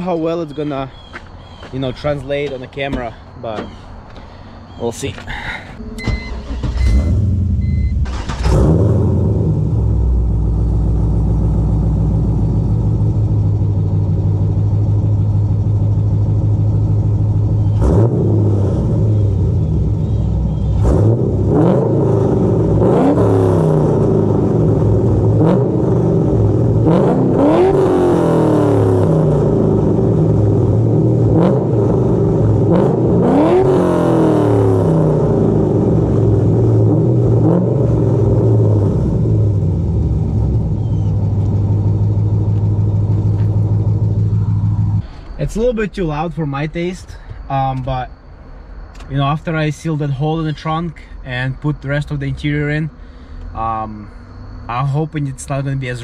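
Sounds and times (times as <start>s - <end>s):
car engine revving: 5.9s - 45.8s
car engine idling loudly: 38.2s - 45.4s.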